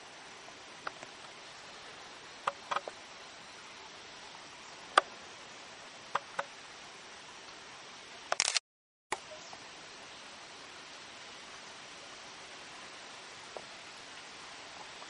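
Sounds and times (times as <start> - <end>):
steady hiss: 0.0 - 15.0
sharp clicks: 8.3 - 9.2.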